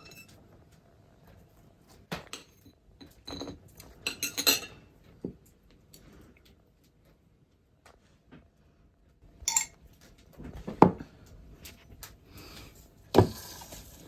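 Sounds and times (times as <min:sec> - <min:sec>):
household objects clicking and clinking: 0:00.0 - 0:00.4, 0:09.4 - 0:10.8.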